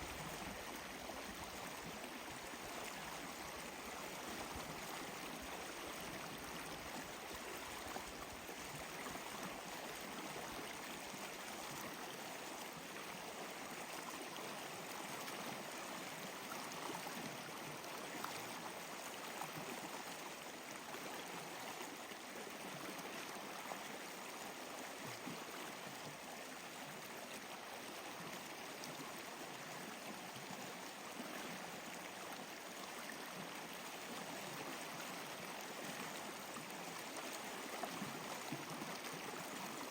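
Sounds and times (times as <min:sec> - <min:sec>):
water flowing steadily: 0:00.0 - 0:39.9.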